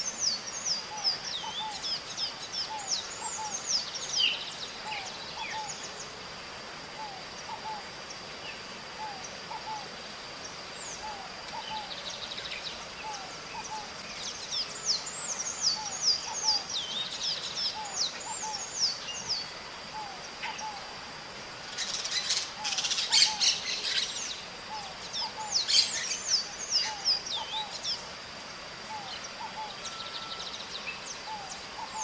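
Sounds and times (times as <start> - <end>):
constant high whine: 0.0 - 32.0.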